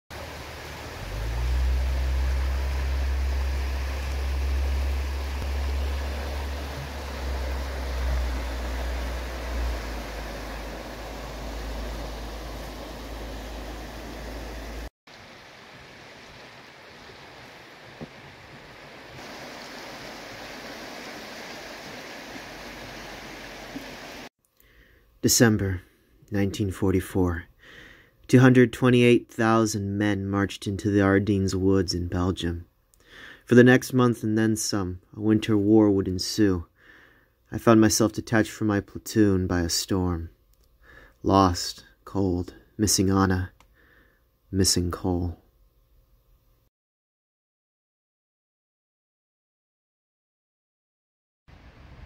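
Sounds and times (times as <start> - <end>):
river water rushing: 0.1 - 24.3
low rumble: 0.2 - 14.9.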